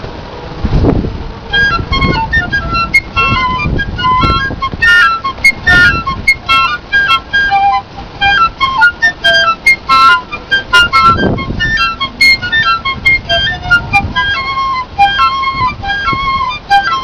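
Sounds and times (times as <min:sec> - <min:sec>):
piccolo playing: 0:01.3 - 0:17.0.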